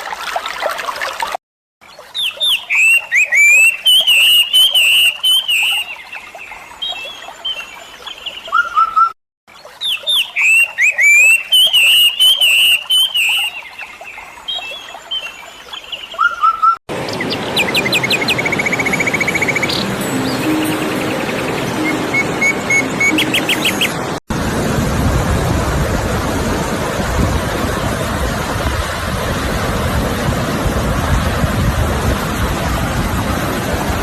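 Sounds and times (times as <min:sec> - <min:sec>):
songbirds singing: 0:01.8 - 0:24.1
fast bird trill: 0:17.6 - 0:24.0.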